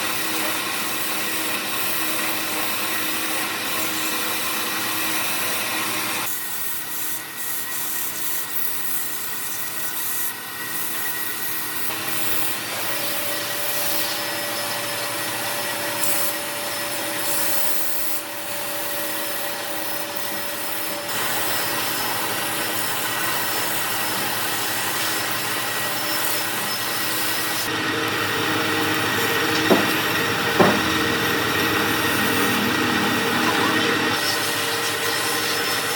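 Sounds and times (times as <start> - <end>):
tool rubbing spinning wood: 8.2 - 35.9
wood lathe humming: 9.9 - 35.9
sharp knocks: 29.5 - 31.2.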